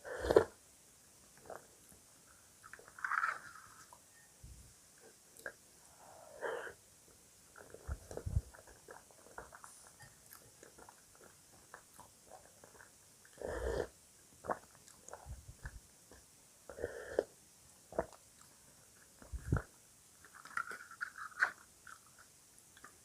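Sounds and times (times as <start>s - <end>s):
crisp chewing: 7.6s - 13.4s, 18.0s - 23.0s.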